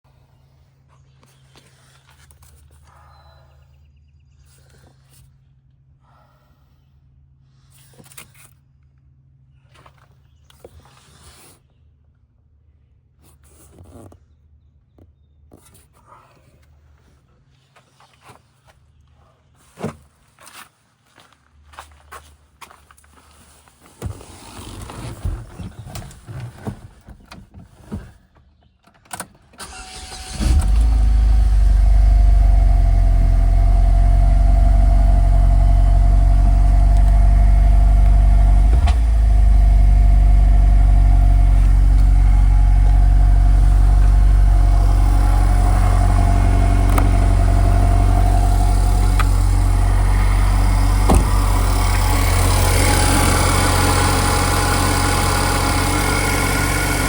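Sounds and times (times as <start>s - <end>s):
car engine starting and idling: 29.6s - 57.0s.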